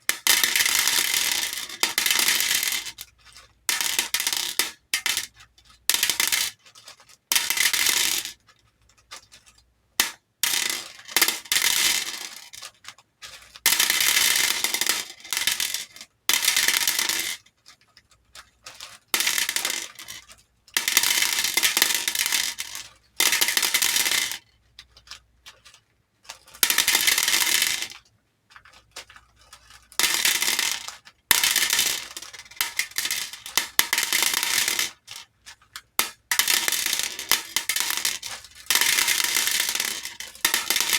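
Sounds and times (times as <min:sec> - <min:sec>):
beads clattering into a bowl: 0:13.7 - 0:17.4, 0:18.6 - 0:24.4, 0:26.6 - 0:28.0, 0:29.8 - 0:40.9.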